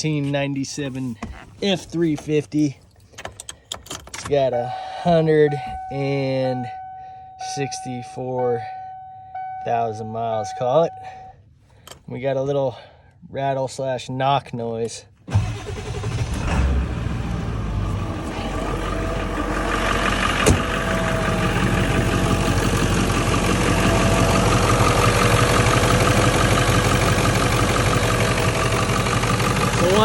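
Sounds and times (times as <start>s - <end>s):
diesel engine idling: 15.3s - 30.0s.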